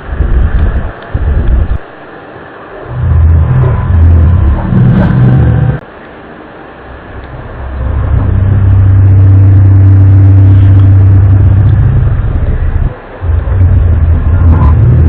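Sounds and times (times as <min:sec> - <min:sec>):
low droning tone: 0:02.4 - 0:05.8, 0:06.7 - 0:15.0.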